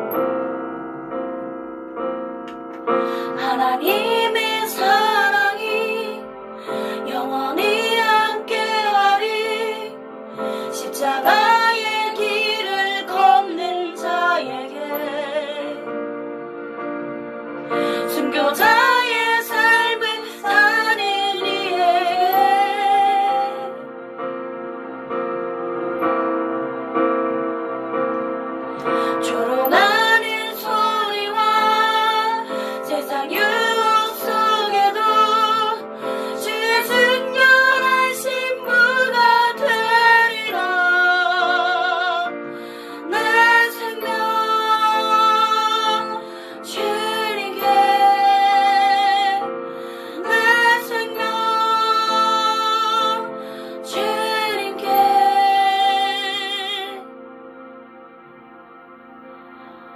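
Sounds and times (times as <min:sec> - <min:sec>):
sustained piano chords: 0:00.0 - 0:59.9
woman singing with vibrato: 0:18.1 - 0:23.8, 0:29.2 - 0:42.4, 0:50.2 - 0:53.3.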